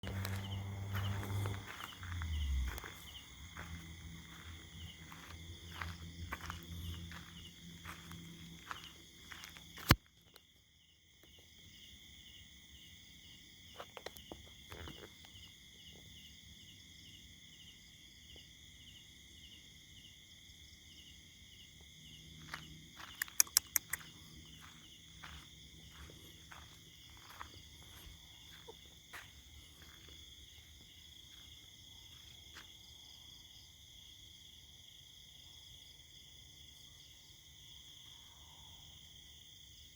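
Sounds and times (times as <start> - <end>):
insects and crickets trilling: 0.0 - 39.9
short clicks: 23.1 - 24.1.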